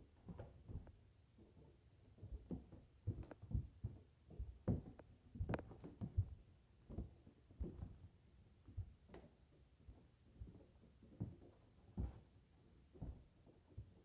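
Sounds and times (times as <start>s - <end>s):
hands and feet thumping floor: 2.2s - 8.0s, 8.7s - 14.0s.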